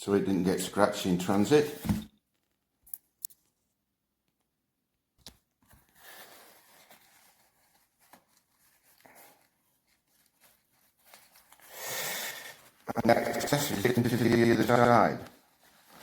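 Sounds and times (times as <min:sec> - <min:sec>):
soft rustling: 0:05.7 - 0:11.7, 0:14.4 - 0:16.0.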